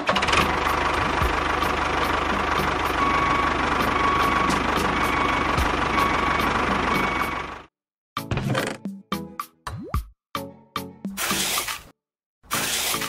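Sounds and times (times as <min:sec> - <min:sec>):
engine idling: 0:00.0 - 0:07.7.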